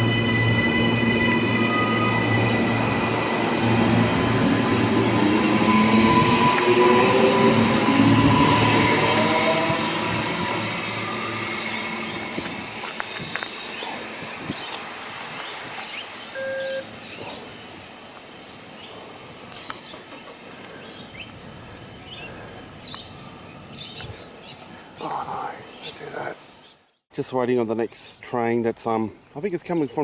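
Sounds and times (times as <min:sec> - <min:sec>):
train rumbling past: 0:00.0 - 0:26.4
insects droning: 0:00.0 - 0:30.0
birds chirping: 0:08.7 - 0:27.1, 0:29.4 - 0:30.0
short beep: 0:16.4 - 0:16.9.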